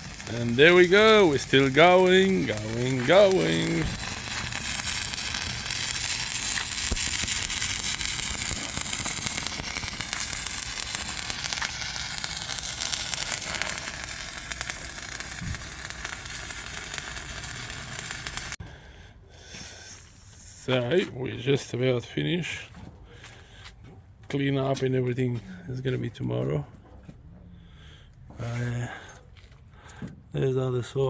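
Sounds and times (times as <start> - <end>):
arc welding sizzle: 0.0 - 18.6.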